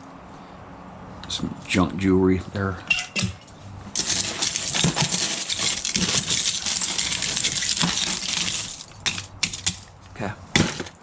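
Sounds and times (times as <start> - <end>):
metal pieces clattering and jingling: 2.9 - 9.9.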